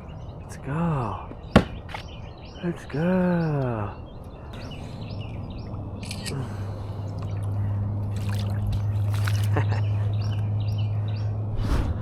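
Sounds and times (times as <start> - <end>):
bird chirping: 0.0 - 11.4
water trickling and splashing: 7.0 - 10.3.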